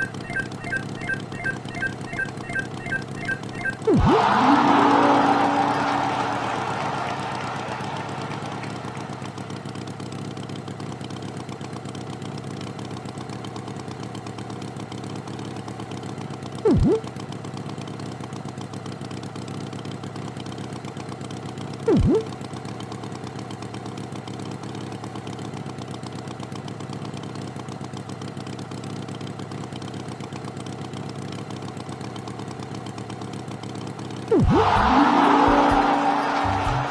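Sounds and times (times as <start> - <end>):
loud tone dipping and rising: 0.0 - 5.6, 16.7 - 17.0, 34.3 - 36.9.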